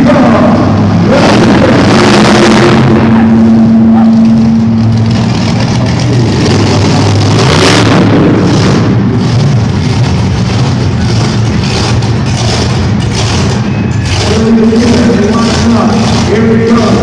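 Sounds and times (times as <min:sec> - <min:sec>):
monster truck engines revving: 0:00.0 - 0:17.0
steady held tone: 0:02.8 - 0:05.4.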